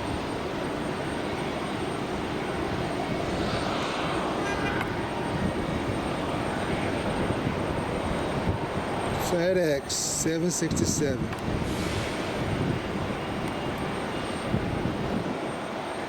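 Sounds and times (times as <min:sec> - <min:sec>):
jet engines rushing: 0:00.0 - 0:09.9.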